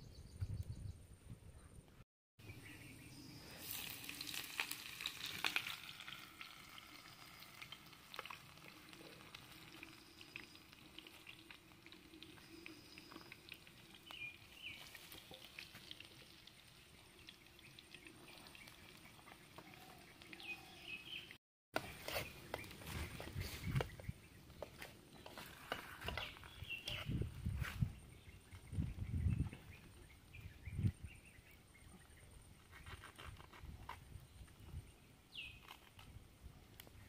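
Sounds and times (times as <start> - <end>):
egg frying in oil: 3.5 - 20.6.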